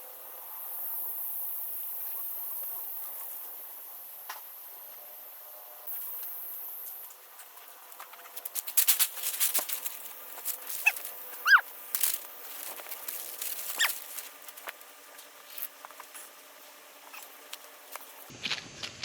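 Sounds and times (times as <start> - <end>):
short high squeaks: 10.6 - 12.2, 13.1 - 14.5, 17.0 - 17.4.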